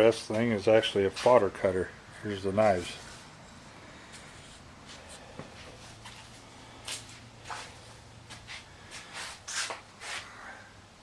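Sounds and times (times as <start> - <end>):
short scuffs and rustles: 0.3 - 1.5, 4.1 - 10.3.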